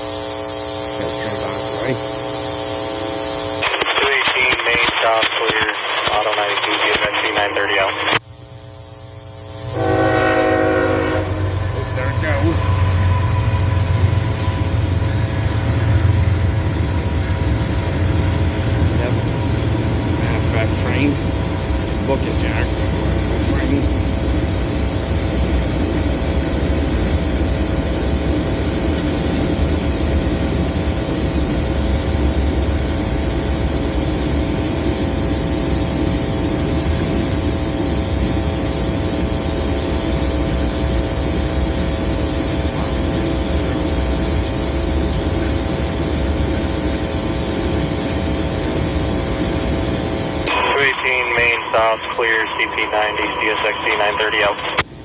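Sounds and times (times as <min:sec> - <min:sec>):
held humming tones: 0:00.0 - 0:04.3, 0:08.2 - 0:50.7
train wheels rumbling on rails: 0:09.2 - 0:50.7.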